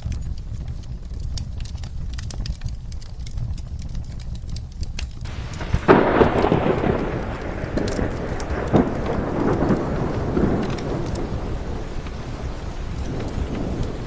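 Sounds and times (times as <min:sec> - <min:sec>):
low rumble: 0:00.0 - 0:14.0
wood fire crackling: 0:00.0 - 0:14.0
thunder clap: 0:05.2 - 0:14.0.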